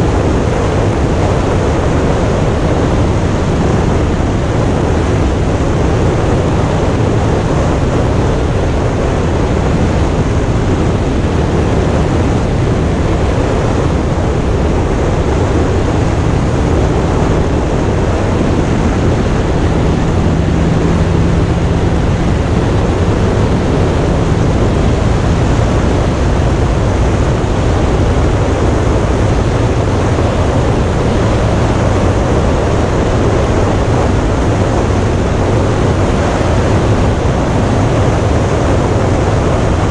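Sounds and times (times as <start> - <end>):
wind rushing over microphone: 0.0 - 39.9
motorcycle engine running: 14.2 - 35.6.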